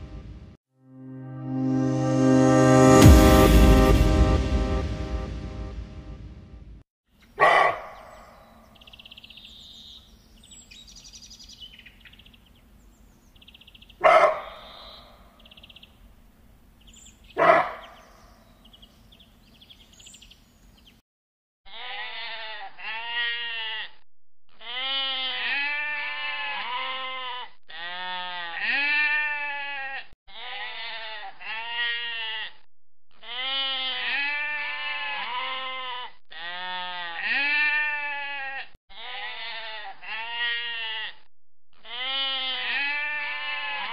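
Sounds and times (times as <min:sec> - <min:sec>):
sheep bleating: 0:21.7 - 0:24.0, 0:24.6 - 0:43.9.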